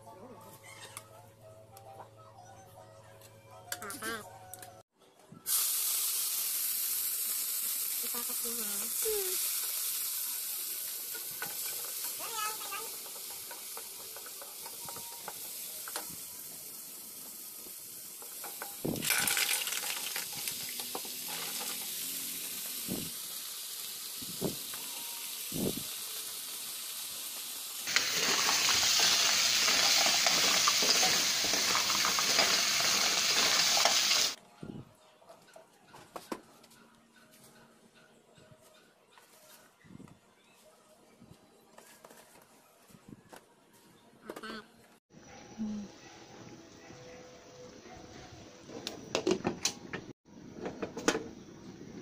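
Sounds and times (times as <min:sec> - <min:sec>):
food sizzling in a pan: 0:05.5 - 0:34.4.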